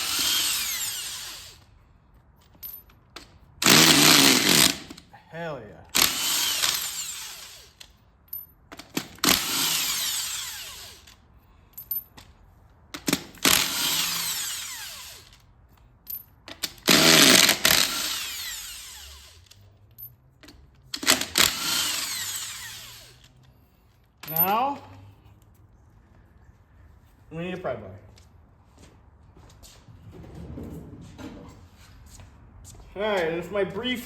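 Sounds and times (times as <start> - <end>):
impact wrench bursts: 0.0 - 1.7, 3.6 - 5.0, 5.9 - 8.0, 8.8 - 11.2, 13.0 - 15.4, 16.5 - 19.7, 20.9 - 23.4.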